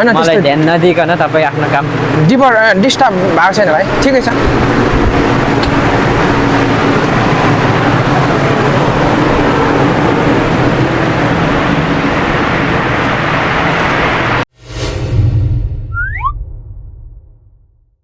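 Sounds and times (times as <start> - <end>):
loud machinery humming: 0.0 - 14.5
loud steady noise: 0.0 - 14.5
deep bass rumble: 4.0 - 18.0
whoosh sound effect: 14.6 - 17.6.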